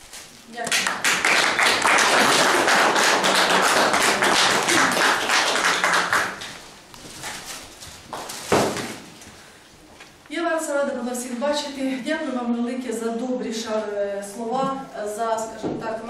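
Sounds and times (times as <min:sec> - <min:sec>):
audience applauding: 0:00.7 - 0:06.6.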